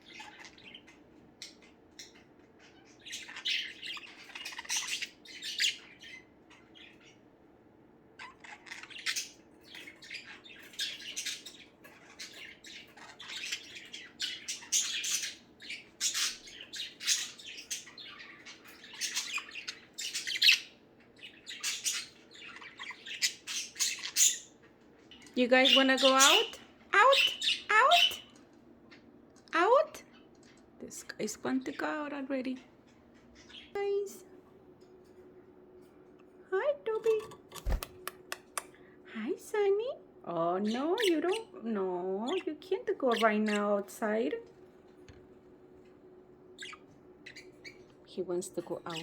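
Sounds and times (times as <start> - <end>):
budgerigars chirping and squawking: 0.0 - 7.3, 8.1 - 34.2, 40.6 - 41.6, 42.2 - 44.4, 46.4 - 49.0.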